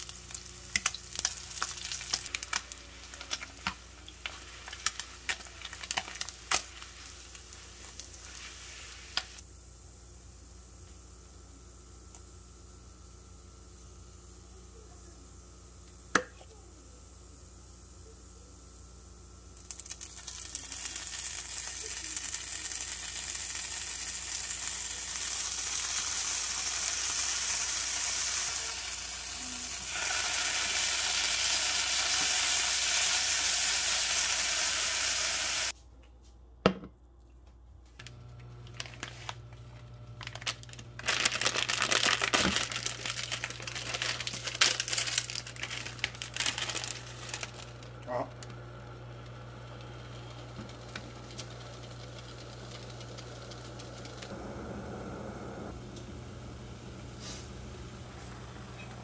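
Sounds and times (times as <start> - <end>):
fish frying sizzle: 0.0 - 9.4, 19.5 - 35.8, 40.3 - 47.9
cooktop low hum: 0.0 - 59.0
crinkling and clicking handling: 37.8 - 47.8.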